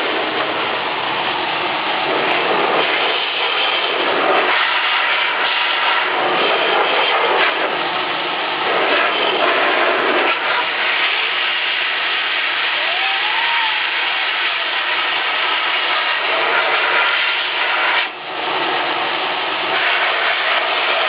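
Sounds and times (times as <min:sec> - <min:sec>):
vacuum cleaner blowing air: 0:00.0 - 0:21.0.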